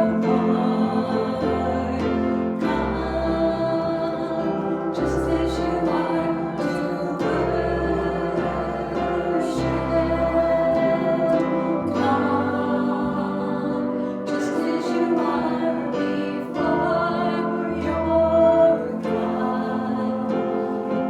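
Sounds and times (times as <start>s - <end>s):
choir singing a worship song: 0.0s - 21.0s.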